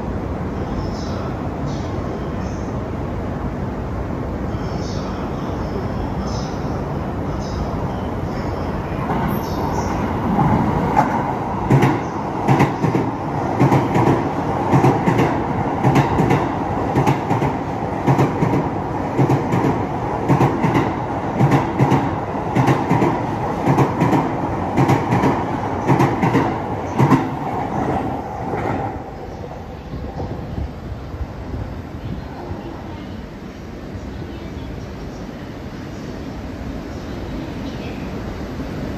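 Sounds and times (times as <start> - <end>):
train running rumble: 4.8 - 36.0.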